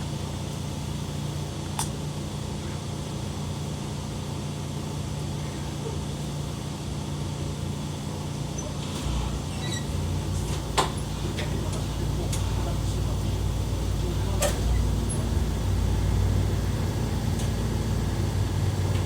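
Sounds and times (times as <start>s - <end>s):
tram interior hum: 0.0s - 19.0s
sharp click: 1.8s - 2.0s.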